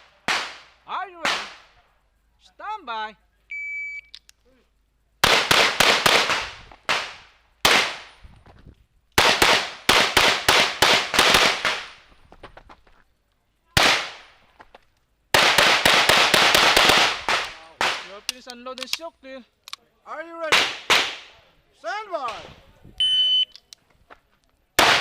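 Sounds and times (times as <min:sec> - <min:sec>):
pistol shots: 0:00.2 - 0:01.7, 0:05.2 - 0:08.1, 0:09.2 - 0:12.0, 0:13.8 - 0:14.2, 0:15.3 - 0:18.2, 0:20.5 - 0:21.3, 0:24.8 - 0:25.0.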